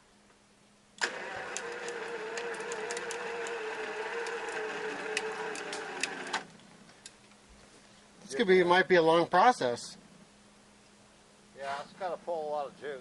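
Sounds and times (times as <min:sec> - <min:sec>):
electric winch motor whine: 0:01.0 - 0:06.5
clicks: 0:01.0 - 0:07.4.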